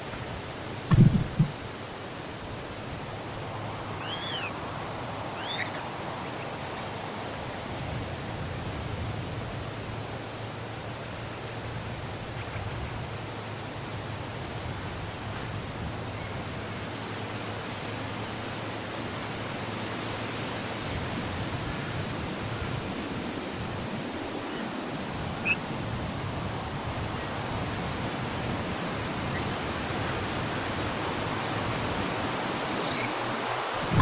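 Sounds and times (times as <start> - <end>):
steady hiss: 0.0 - 12.0
sharp thumps: 0.9 - 1.6
nestling birds chirping: 0.9 - 1.7, 3.7 - 4.6, 5.2 - 6.3, 32.3 - 34.0.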